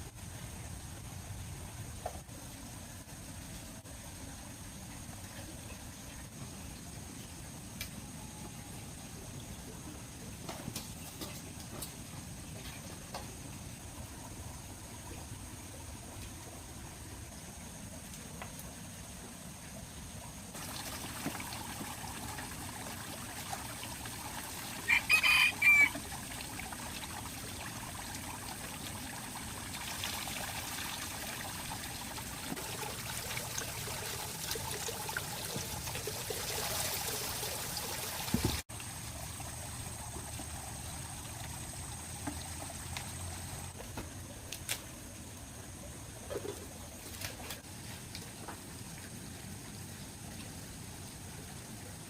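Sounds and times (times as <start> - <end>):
water trickling: 11.0 - 43.8.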